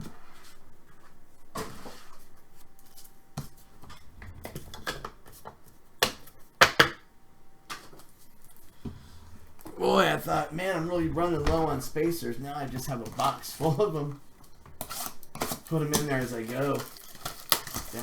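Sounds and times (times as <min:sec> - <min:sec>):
cards rustling: 0:09.6 - 0:18.0
plastic card spacers clacking: 0:14.4 - 0:18.0.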